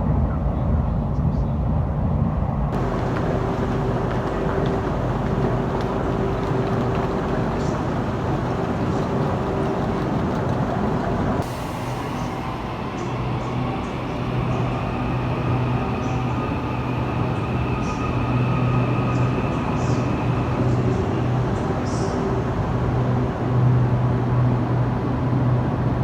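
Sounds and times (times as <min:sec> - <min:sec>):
electric train low hum: 0:00.0 - 0:26.0.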